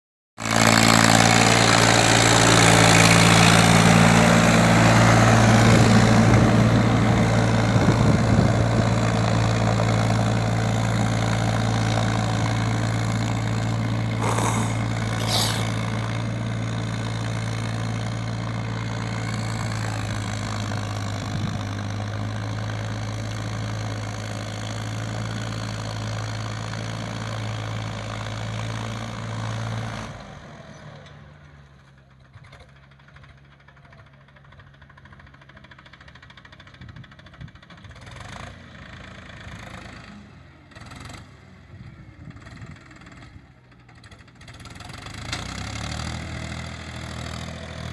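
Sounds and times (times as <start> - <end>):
tractor diesel engine running: 0.6 - 14.2.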